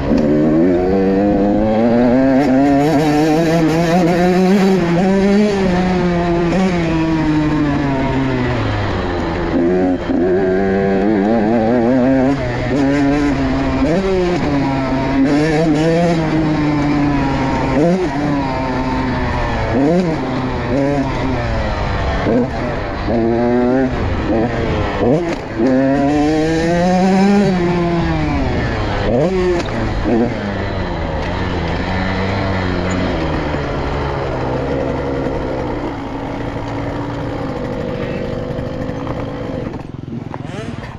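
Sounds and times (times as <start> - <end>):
motorcycle engine running hard: 0.0 - 40.9
motorcycle engine idling: 32.1 - 40.9.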